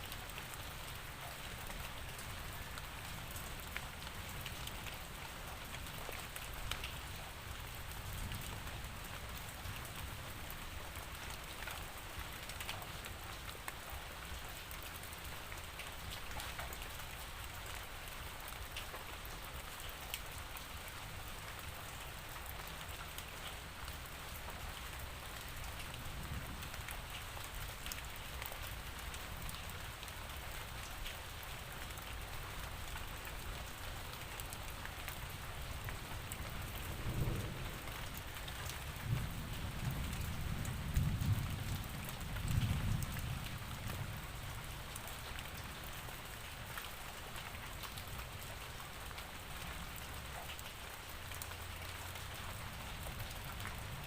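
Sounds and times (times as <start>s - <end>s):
steady rain falling: 0.0s - 54.0s
thunder rumbling: 36.8s - 37.9s.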